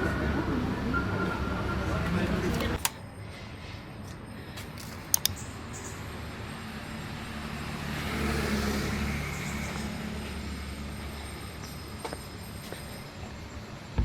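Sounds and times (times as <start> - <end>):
road noise: 0.0 - 14.0
sharp clicks: 5.1 - 5.4
vehicle engine hum: 5.2 - 14.0.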